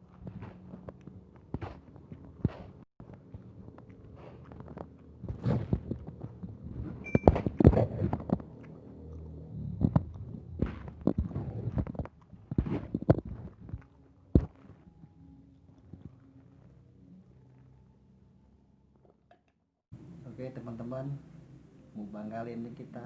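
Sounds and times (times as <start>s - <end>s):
person chewing food: 0.0s - 17.7s
low rumble: 5.1s - 12.6s.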